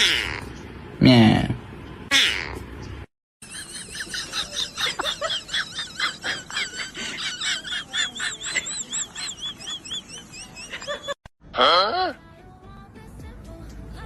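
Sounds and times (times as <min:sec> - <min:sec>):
birds chirping: 0:02.1 - 0:11.2.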